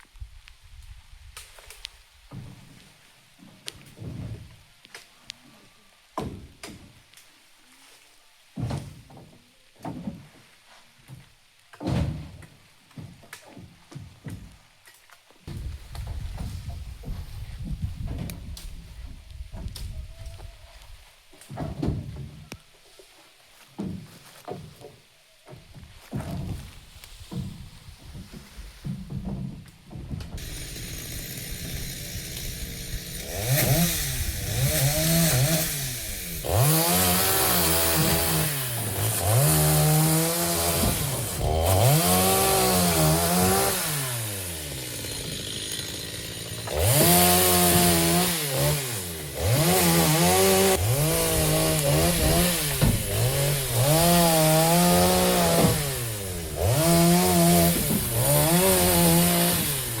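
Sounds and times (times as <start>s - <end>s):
chainsaw cutting logs: 30.3s - 60.0s.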